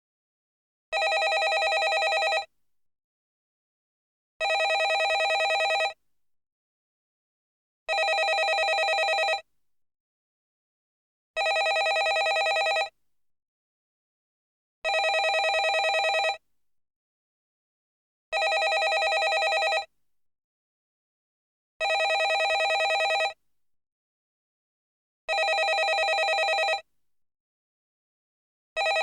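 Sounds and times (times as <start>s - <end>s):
telephone ringing: 1.0s - 2.5s, 4.4s - 6.0s, 7.9s - 9.4s, 11.4s - 12.9s, 14.9s - 16.4s, 18.4s - 19.9s, 21.8s - 23.4s, 25.3s - 26.8s, 28.8s - 29.0s.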